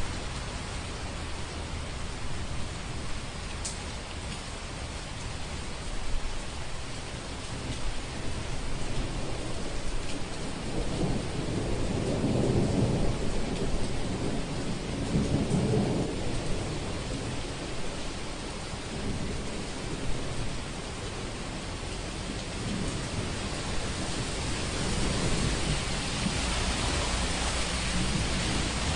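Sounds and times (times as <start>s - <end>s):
rain hiss: 0.0s - 28.9s
thunder rumbling: 8.2s - 21.4s, 22.1s - 28.9s.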